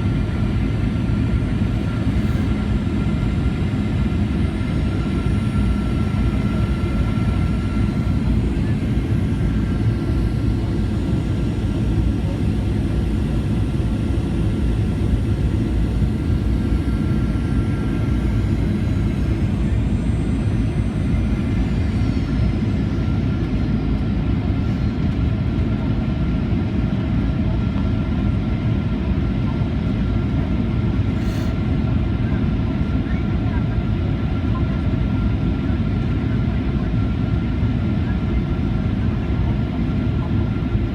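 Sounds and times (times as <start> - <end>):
faint steady whines: 0.0 - 40.9
jet engine roar inside cabin: 0.0 - 40.9.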